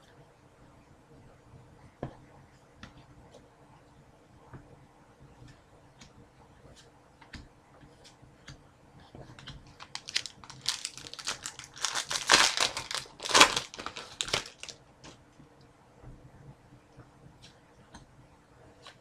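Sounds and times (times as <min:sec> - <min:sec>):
wrapper crinkling and tearing: 0:09.7 - 0:14.8.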